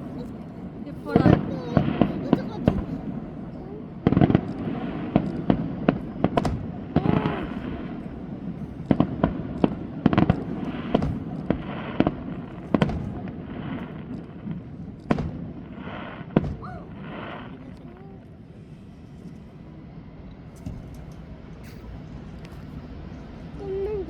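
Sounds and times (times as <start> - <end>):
fireworks bangs: 0.0 - 18.6
fireworks crackling: 0.0 - 24.0.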